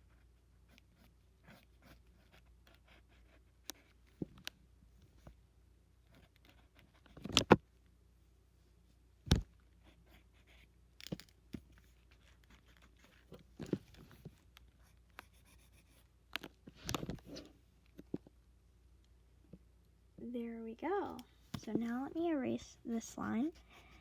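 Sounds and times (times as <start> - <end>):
scratchy drawing strokes: 14.8 - 16.1.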